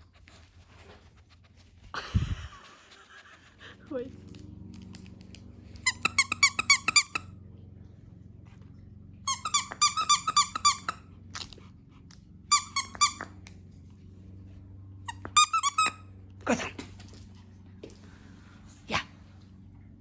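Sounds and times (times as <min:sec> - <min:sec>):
squeaky dog toy squeaking: 0:05.8 - 0:07.3, 0:09.3 - 0:11.0, 0:12.5 - 0:13.4, 0:15.1 - 0:16.1.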